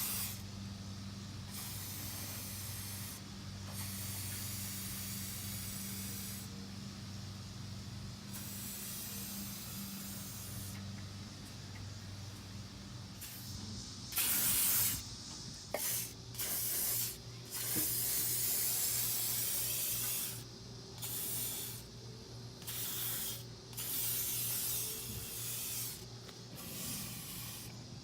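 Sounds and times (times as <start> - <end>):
aerosol can spraying: 0.0 - 0.4, 1.5 - 6.5, 8.3 - 10.8, 13.2 - 15.0, 15.7 - 20.4, 21.0 - 21.8, 22.6 - 27.8.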